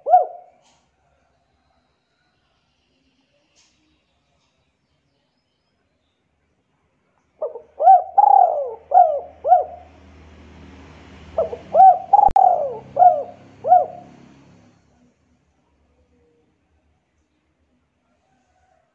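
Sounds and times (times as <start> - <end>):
bird calling: 0.0 - 0.8, 7.4 - 10.0, 11.4 - 14.4.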